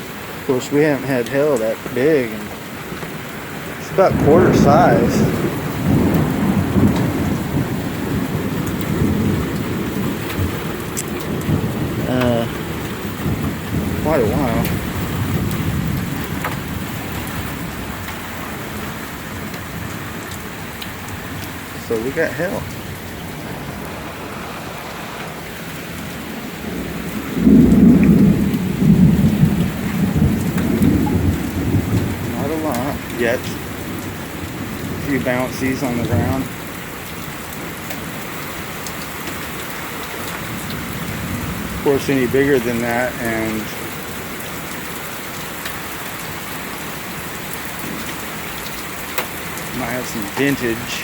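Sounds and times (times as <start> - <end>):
hailstones tapping: 0.0 - 51.0
heavy rain pouring: 0.0 - 51.0
thunder rumbling: 1.6 - 44.8, 46.0 - 51.0.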